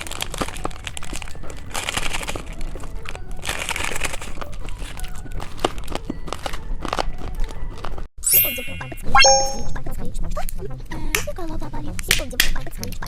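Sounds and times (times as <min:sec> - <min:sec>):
candy wrapper crinkling: 0:00.0 - 0:08.1.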